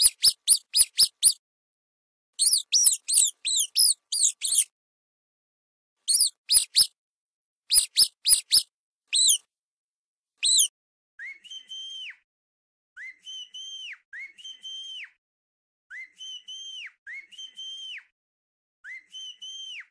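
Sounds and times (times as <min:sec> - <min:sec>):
mouse squeaking: 0:00.0 - 0:01.4, 0:02.4 - 0:04.7, 0:06.1 - 0:06.9, 0:07.7 - 0:09.4, 0:10.4 - 0:10.7
person whistling: 0:06.1 - 0:06.9, 0:07.7 - 0:08.6, 0:10.4 - 0:12.2, 0:13.0 - 0:15.2, 0:15.9 - 0:18.1, 0:18.9 - 0:19.9.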